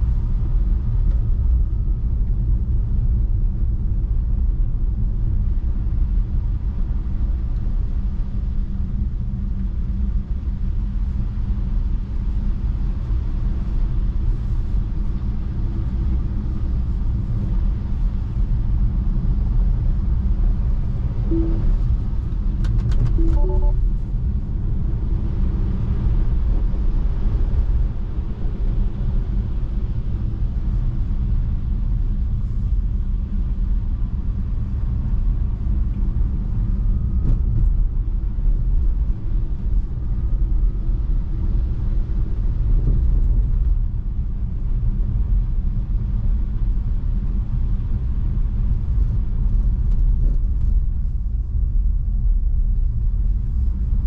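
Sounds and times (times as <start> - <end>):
road and tyre noise in car cabin: 0.0 - 54.0
short tones: 21.3 - 21.9, 23.2 - 23.8.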